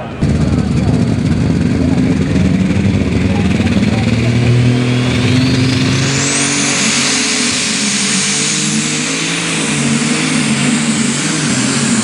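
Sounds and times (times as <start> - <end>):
engine running at high revs: 0.0 - 12.0
turbo whine: 0.0 - 12.0.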